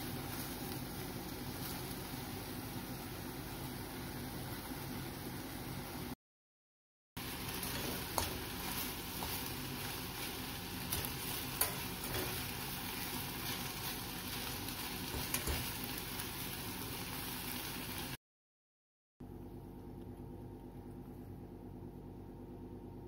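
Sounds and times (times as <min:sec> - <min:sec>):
food sizzling in a pan: 0:00.0 - 0:06.2, 0:07.2 - 0:18.2.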